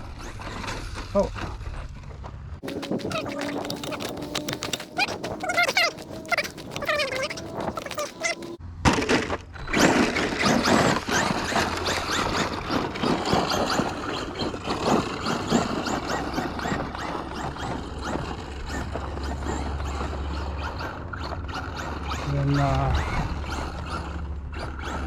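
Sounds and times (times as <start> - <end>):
rc truck tyres crunching gravel: 2.6 - 9.2.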